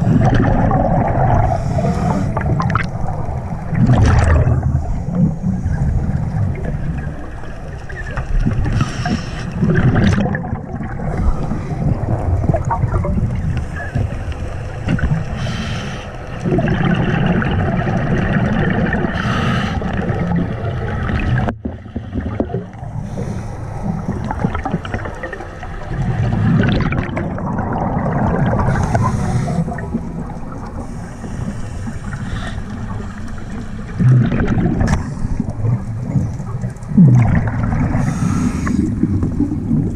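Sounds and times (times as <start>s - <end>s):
bubbles gurgling: 0.0s - 15.4s, 16.4s - 23.1s, 23.9s - 31.0s, 33.8s - 39.9s
low underwater rumble: 0.0s - 15.6s, 16.2s - 39.9s
diver breathing through regulator: 1.4s - 2.6s, 8.7s - 9.7s, 15.3s - 16.2s, 19.1s - 20.0s, 22.9s - 24.4s, 28.5s - 30.0s, 30.7s - 34.1s, 37.8s - 39.2s.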